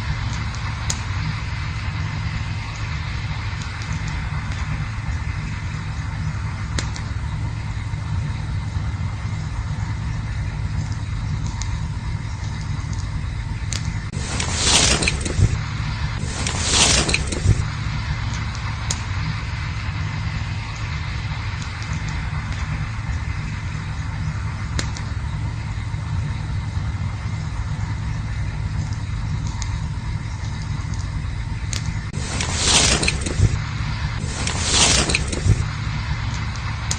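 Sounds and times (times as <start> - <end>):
campfire rumble and hiss: 0.0 - 36.9
fire crackling pops: 0.0 - 36.9
rushing hiss: 14.2 - 20.6.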